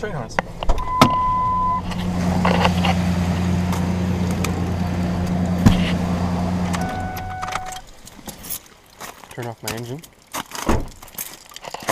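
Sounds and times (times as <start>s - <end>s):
truck engine idling: 0.0s - 8.0s
air horn blast: 5.9s - 7.8s.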